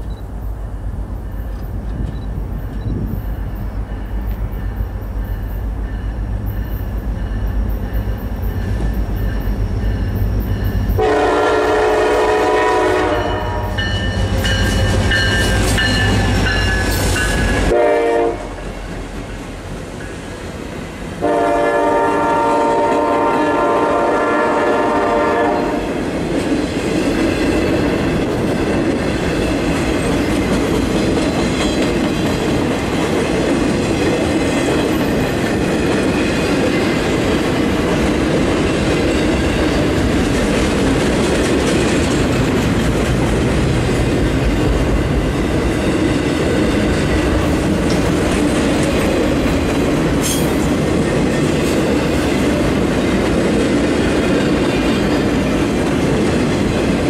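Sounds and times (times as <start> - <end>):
train horn blasts: 10.9 - 15.5, 17.6 - 18.6, 21.2 - 25.9
clatter of wheels on rails: 26.2 - 57.0.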